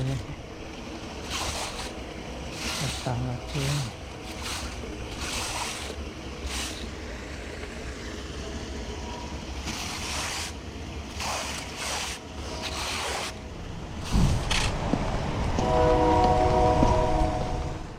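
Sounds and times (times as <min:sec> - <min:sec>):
rushing floodwater: 0:00.0 - 0:08.9.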